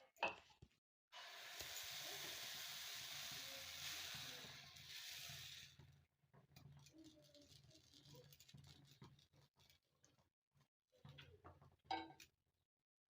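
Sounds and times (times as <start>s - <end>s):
sizzling on a griddle: 1.2s - 5.9s.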